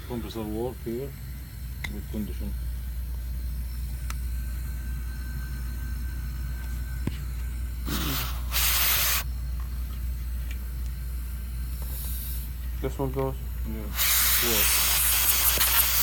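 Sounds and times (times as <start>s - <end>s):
compressor humming: 0.0s - 16.0s
compressed air hissing: 7.8s - 9.3s, 11.6s - 12.7s, 13.8s - 16.0s.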